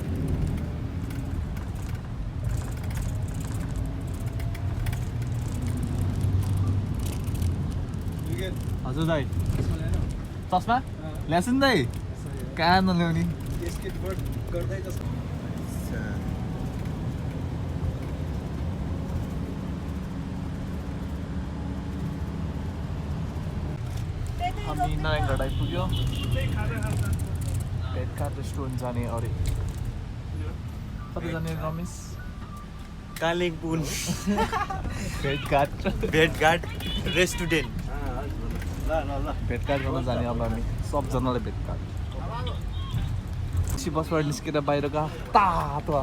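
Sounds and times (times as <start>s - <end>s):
light rattling: 0.0s - 30.0s
bus engine rumble: 0.0s - 46.0s.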